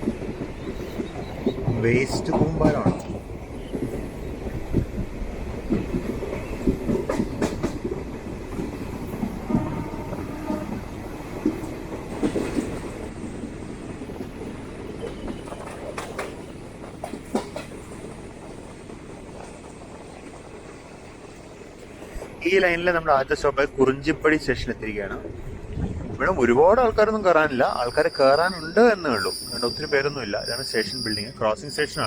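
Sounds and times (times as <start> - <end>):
wheels clattering over rail joints: 0.0 - 13.2, 14.0 - 22.4
train rumbling on rails: 0.0 - 32.0.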